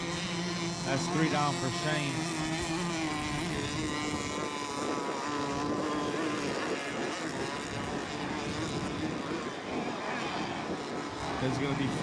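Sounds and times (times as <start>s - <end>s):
model boat engines buzzing: 0.0s - 12.0s.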